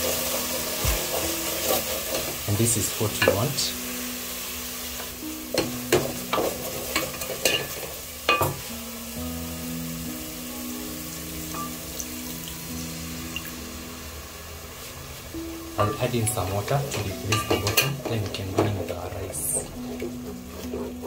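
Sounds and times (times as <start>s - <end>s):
wooden spoon scraping a pot: 0.0s - 3.4s, 17.3s - 21.0s
paste sizzling in a pot: 0.0s - 21.0s.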